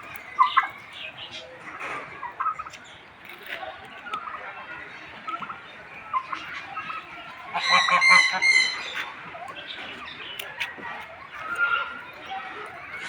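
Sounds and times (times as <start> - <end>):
small birds chirping: 0.0 - 13.0
large bird honking: 7.5 - 9.0.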